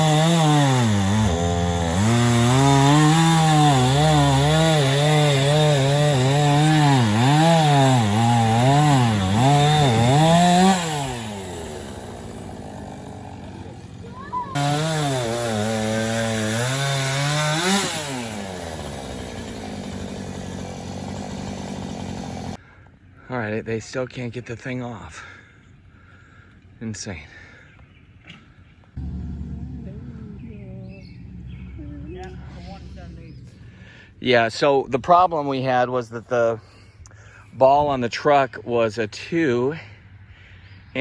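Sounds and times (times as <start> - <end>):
chainsaw engine revving: 0.0 - 22.6, 29.0 - 34.2.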